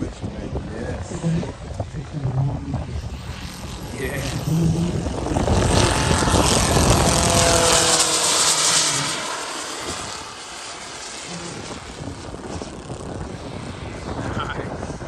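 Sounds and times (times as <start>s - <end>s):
model jets flying past: 0.0s - 15.0s
distant hum: 2.7s - 13.8s.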